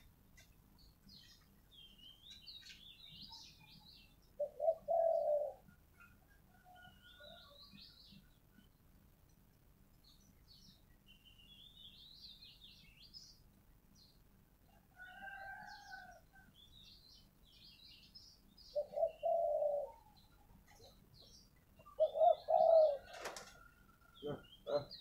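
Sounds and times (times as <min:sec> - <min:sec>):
small birds chirping: 0:00.0 - 0:25.0
dove cooing: 0:04.4 - 0:05.8, 0:18.7 - 0:21.0, 0:21.8 - 0:25.0.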